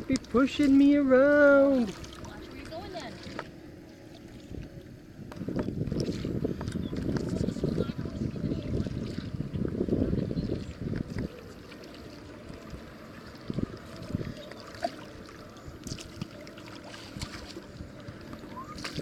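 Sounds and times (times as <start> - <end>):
paddle strokes in water: 0.0 - 19.0
wind buffeting microphone: 4.4 - 14.8.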